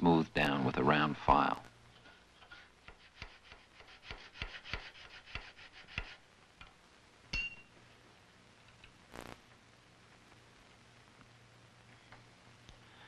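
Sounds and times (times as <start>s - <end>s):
tool scraping: 2.0s - 6.2s
ringing metallic clink: 7.3s - 7.7s.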